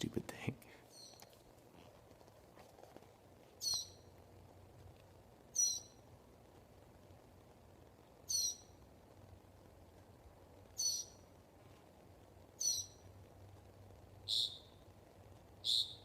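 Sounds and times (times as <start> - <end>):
faint steady hum: 0.0 - 16.0
bird calling: 0.9 - 1.3, 3.6 - 4.1, 5.5 - 6.0, 8.2 - 8.8, 10.8 - 11.2, 12.6 - 13.0, 14.3 - 14.8, 15.6 - 16.0.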